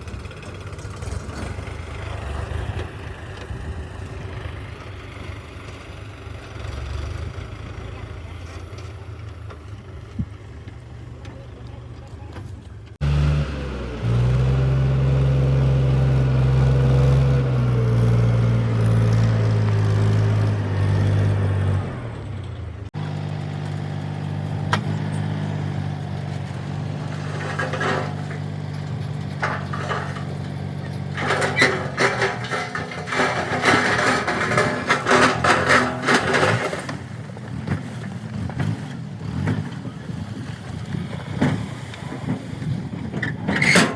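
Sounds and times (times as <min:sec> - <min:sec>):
diesel engines running: 0:00.0 - 0:43.9
machinery clattering and knocking: 0:23.0 - 0:39.9.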